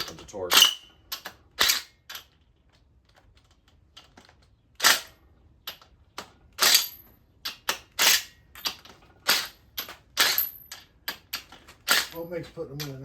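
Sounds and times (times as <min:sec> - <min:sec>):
wrench cracking bolts loose: 0:04.0 - 0:13.0.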